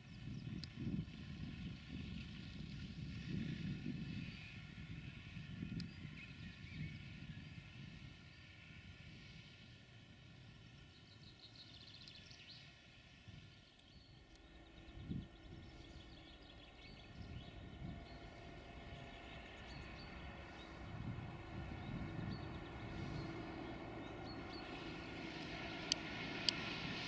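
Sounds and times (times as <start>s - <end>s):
distant freight train rumble: 12.5s - 27.0s.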